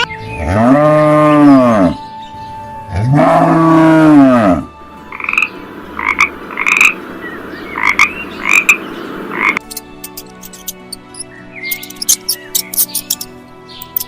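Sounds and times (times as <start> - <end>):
cow mooing: 0.4 - 2.0, 2.9 - 7.0
steady tones: 4.9 - 11.2
frog croaking: 5.0 - 9.6.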